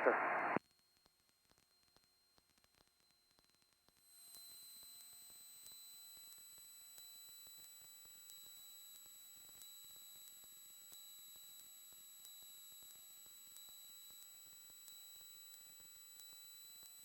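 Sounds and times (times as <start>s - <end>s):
faint electronic hiss: 0.0s - 0.6s.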